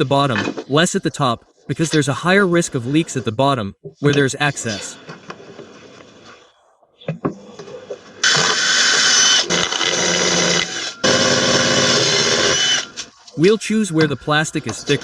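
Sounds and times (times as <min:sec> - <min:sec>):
electric drill boring plastic: 0:08.2 - 0:13.1.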